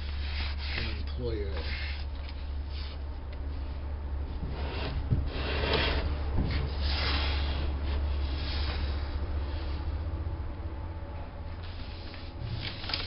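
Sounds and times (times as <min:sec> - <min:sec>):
steady low hum: 0:00.0 - 0:13.0
short rubbing or scraping: 0:04.4 - 0:09.0.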